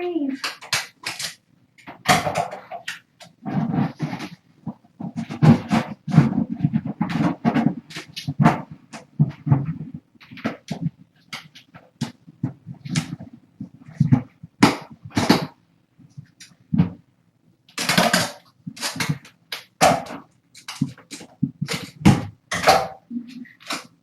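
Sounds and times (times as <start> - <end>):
rustles and knocks of handling: 0.4 - 24.0.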